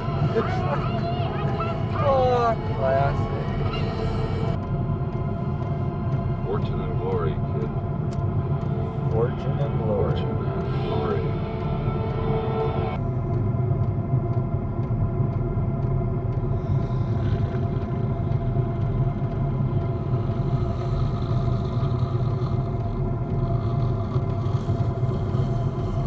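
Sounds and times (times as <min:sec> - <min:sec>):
vehicle engine running: 0:00.0 - 0:04.7.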